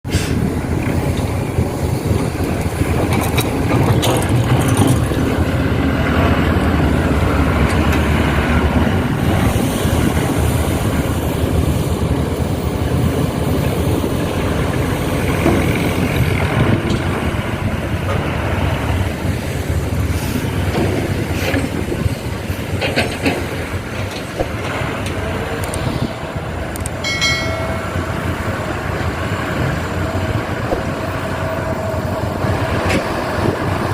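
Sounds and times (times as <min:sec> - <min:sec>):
diesel engines running: 0:00.0 - 0:33.9
knocks and clanks: 0:02.9 - 0:05.5, 0:15.2 - 0:17.4, 0:20.6 - 0:25.2
brief high tone: 0:27.0 - 0:28.3.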